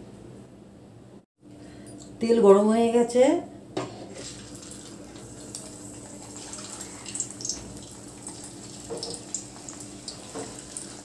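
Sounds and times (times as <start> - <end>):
food sizzling in hot oil: 4.0 - 11.0.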